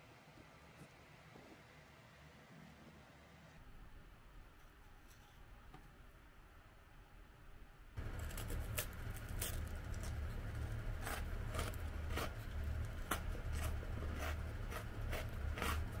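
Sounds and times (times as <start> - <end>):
low steady rumble: 5.4 - 16.0
biscuit crunching: 8.0 - 16.0.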